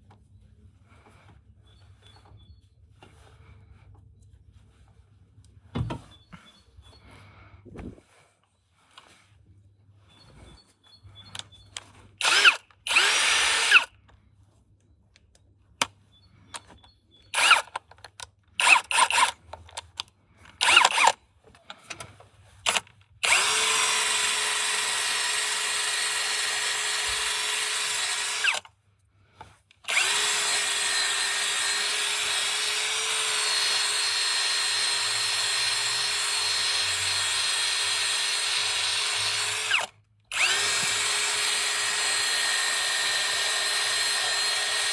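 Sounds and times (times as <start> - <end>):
electric power drill running: 12.2 - 13.9, 17.4 - 17.7, 18.6 - 19.3, 20.6 - 21.1, 22.7 - 28.7, 29.9 - 44.9.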